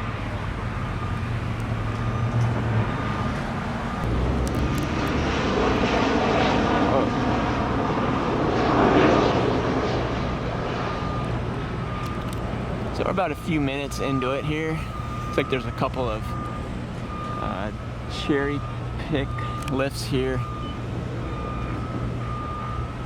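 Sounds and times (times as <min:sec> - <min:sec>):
airplane flying over: 0:00.0 - 0:23.0
low engine hum: 0:00.0 - 0:23.0.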